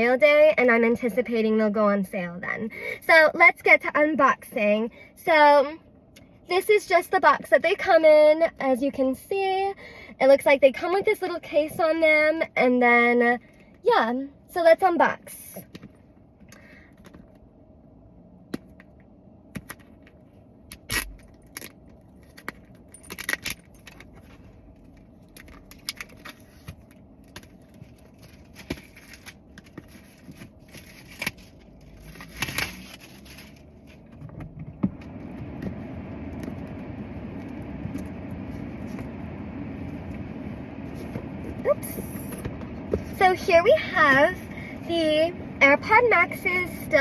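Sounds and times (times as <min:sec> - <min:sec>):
steady rushing noise: 0:34.7 - 0:47.0.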